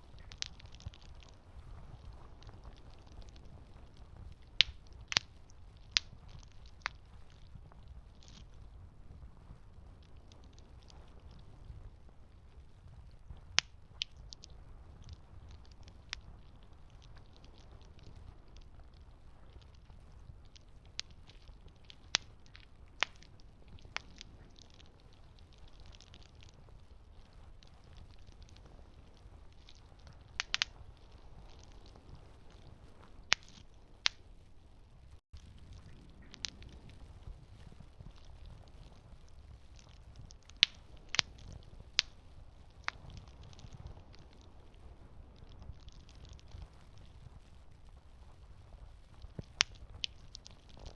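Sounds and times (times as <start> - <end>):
campfire crackling: 0.0 - 50.9
wood pops: 0.1 - 1.4, 4.4 - 7.4, 20.5 - 26.6, 27.6 - 30.8, 33.3 - 34.2, 39.8 - 44.5.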